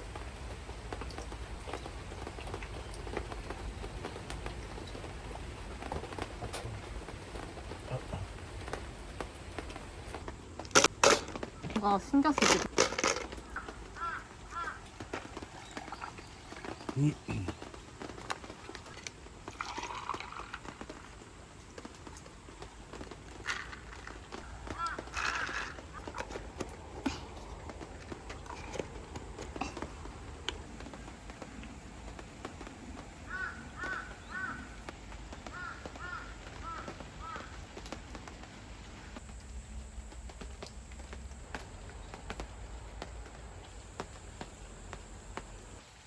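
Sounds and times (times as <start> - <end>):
bird chirping: 6.6 - 19.1.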